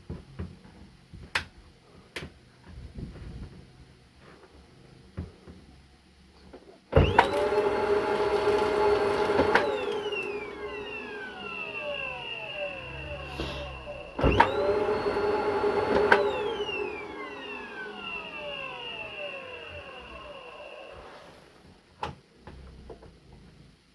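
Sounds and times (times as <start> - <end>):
vacuum cleaner motor whine: 6.9 - 21.9.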